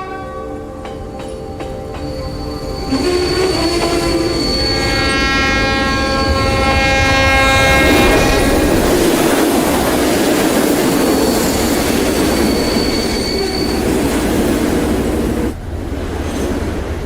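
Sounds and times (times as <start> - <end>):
train wheels rumbling on rails: 0.5 - 17.0
faint thin squeal: 2.0 - 15.5.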